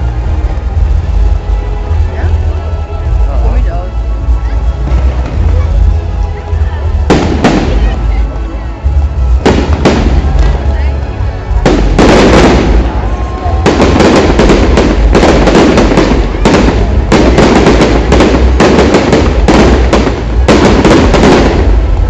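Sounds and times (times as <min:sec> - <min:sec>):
fireworks bangs and crackles: 0:04.6 - 0:22.0.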